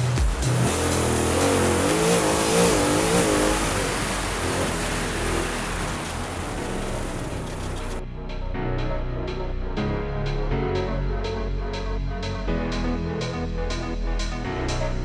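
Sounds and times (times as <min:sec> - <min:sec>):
loud rushing noise: 0:00.0 - 0:08.0
truck engine revving: 0:00.0 - 0:08.0.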